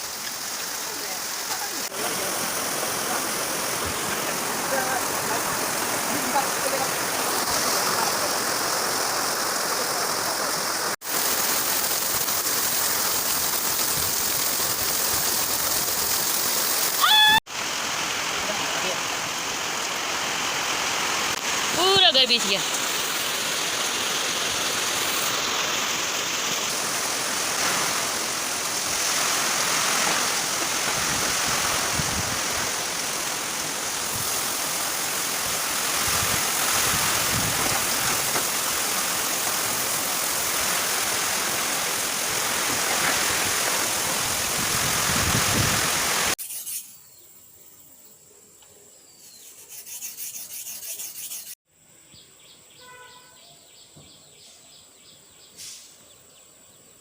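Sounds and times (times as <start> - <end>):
heavy rain: 0.0 - 46.4
strong wind: 30.8 - 32.9, 35.4 - 38.3, 43.1 - 46.3
faint bird chirps: 46.4 - 56.9.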